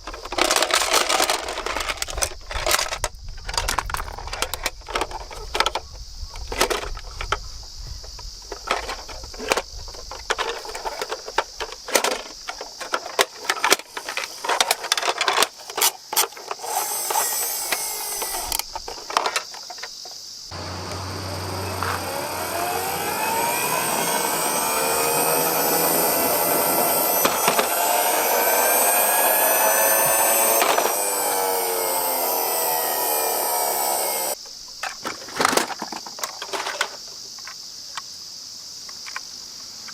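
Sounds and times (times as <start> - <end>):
toy trucks clacking and rattling: 0.0 - 5.8, 8.5 - 20.0, 20.9 - 37.6
toy wheels whirring down ramp: 0.0 - 5.8, 8.6 - 19.6, 20.5 - 34.4.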